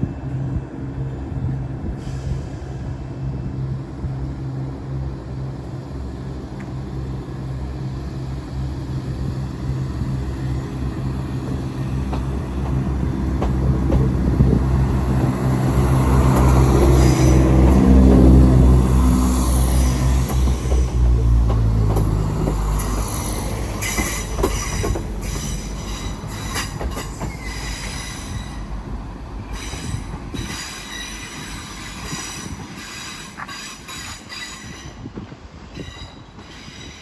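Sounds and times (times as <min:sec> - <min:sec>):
diesel train engine: 0:00.0 - 0:37.0
wheels squealing on rails: 0:08.2 - 0:37.0.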